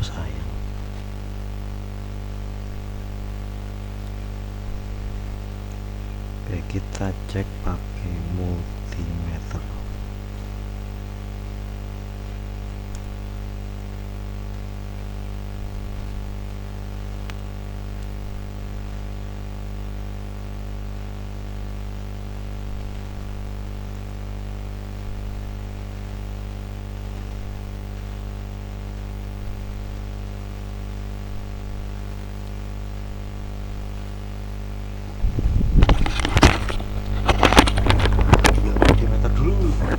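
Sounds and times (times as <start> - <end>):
constant hiss: 0.0 - 39.9
electrical mains hum: 0.0 - 39.9
faint ticks: 23.9 - 24.2, 27.0 - 30.4.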